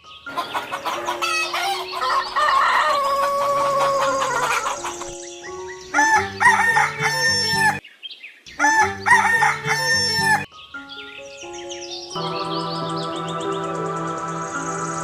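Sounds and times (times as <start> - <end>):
music track: 0.0 - 7.8, 8.6 - 15.0
rooster crowing: 0.3 - 5.1, 6.0 - 7.8, 8.6 - 10.5
held musical notes: 12.1 - 15.0.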